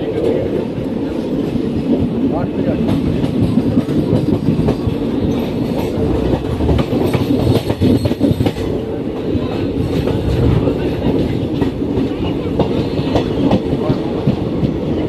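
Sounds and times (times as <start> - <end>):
train rumbling on track: 0.0 - 15.0
wheels clacking over rail joints: 2.8 - 8.8.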